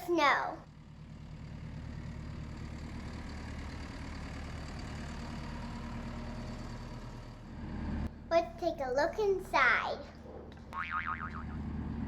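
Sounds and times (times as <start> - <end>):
diesel engine running: 0.1 - 8.3, 11.2 - 12.0.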